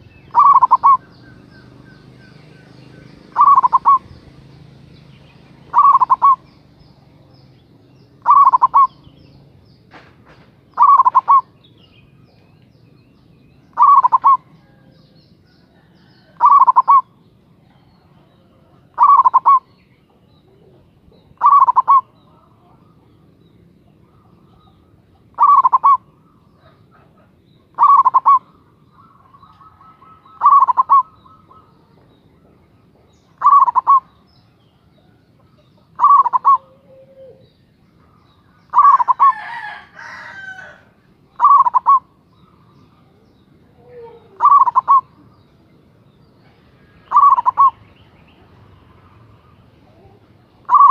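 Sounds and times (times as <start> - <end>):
scratchy bird chatter: 0.0 - 1.0, 3.1 - 6.7, 9.9 - 11.5
dove cooing: 0.0 - 6.6, 8.2 - 9.1, 10.7 - 11.6, 13.7 - 17.2, 18.0 - 34.2, 35.0 - 45.4, 46.8 - 47.9, 48.5 - 50.9.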